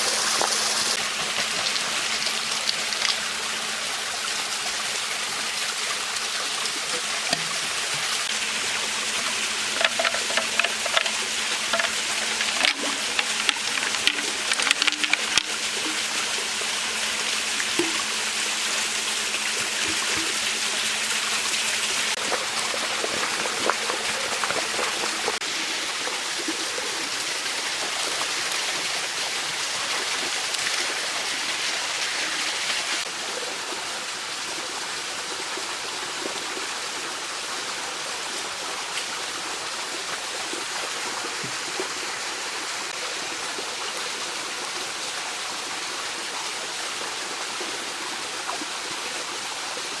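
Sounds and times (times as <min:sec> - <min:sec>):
mountain stream rushing: 0:00.0 - 0:33.4.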